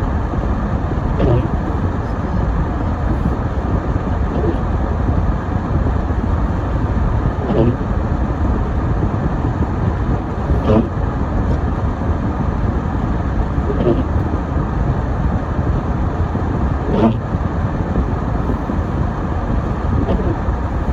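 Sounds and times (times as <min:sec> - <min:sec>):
car driving on snowy road: 0:15.6 - 0:20.9.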